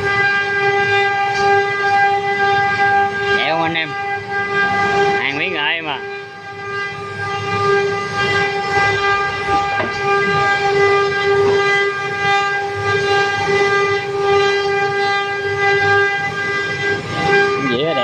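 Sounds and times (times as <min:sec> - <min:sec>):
wood router high-pitched whine: 0:00.0 - 0:18.0.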